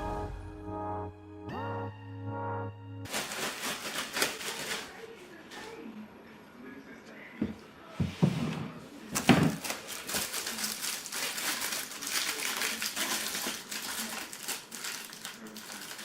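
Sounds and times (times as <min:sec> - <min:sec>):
packaging crinkling and rustling: 0:03.1 - 0:05.0, 0:09.2 - 0:16.0.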